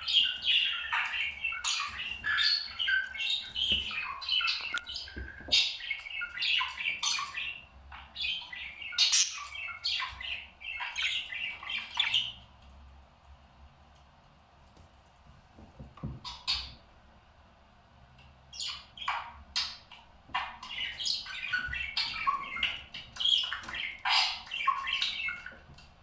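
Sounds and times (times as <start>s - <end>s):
parrot squawking and chirping: 0.0s - 12.4s, 16.2s - 16.8s, 18.5s - 25.6s.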